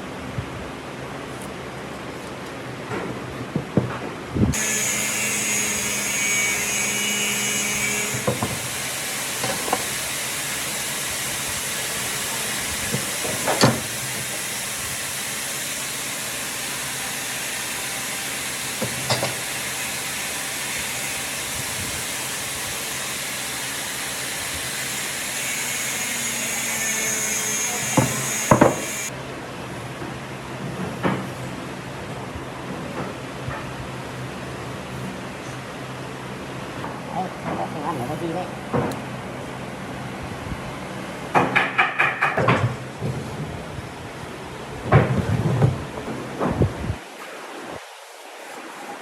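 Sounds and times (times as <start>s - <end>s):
power tool whining: 4.5s - 29.1s
woodworking power tool running: 4.5s - 29.2s.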